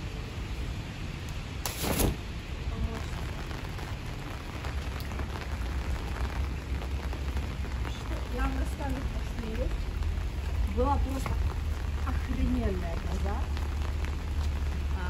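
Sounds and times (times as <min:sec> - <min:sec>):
rain on wet paving: 0:00.0 - 0:15.0
brief loud rush of noise: 0:01.6 - 0:02.3.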